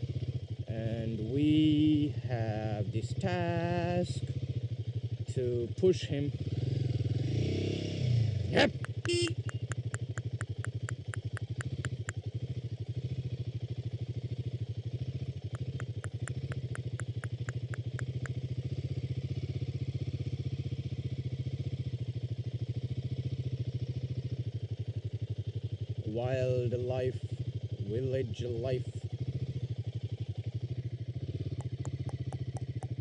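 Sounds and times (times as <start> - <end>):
motorcycle engine running: 0.0 - 33.0
rapid light ticks: 8.7 - 12.3, 15.5 - 18.4, 31.5 - 33.0.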